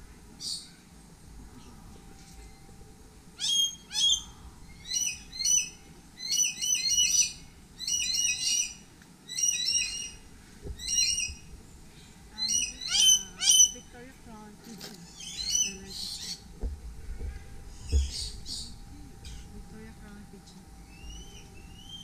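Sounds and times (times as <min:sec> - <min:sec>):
bird calling loudly: 0:03.4 - 0:10.2, 0:10.8 - 0:11.5, 0:12.4 - 0:14.0, 0:15.0 - 0:16.5.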